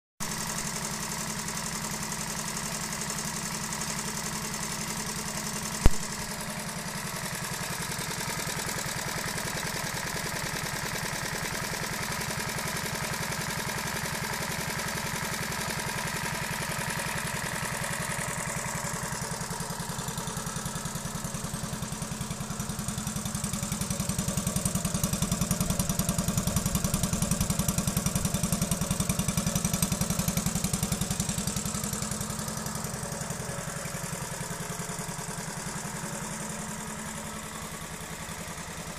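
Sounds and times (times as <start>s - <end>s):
moped engine idling: 0.2s - 38.9s
sharp knock: 5.9s - 6.2s.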